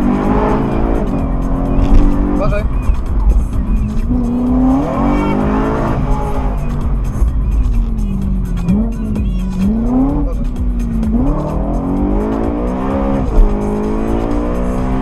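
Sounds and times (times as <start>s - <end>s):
car engine accelerating: 0.0s - 15.0s
gear shift thump: 1.7s - 4.2s.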